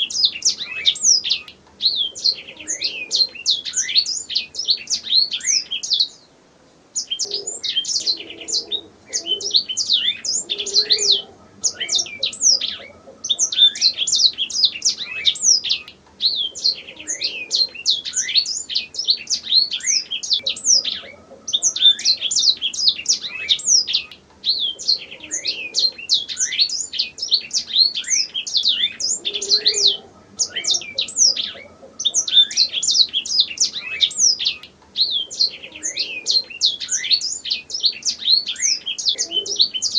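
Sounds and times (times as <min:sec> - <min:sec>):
canary singing: 0:00.0 - 0:06.3, 0:07.0 - 0:39.9.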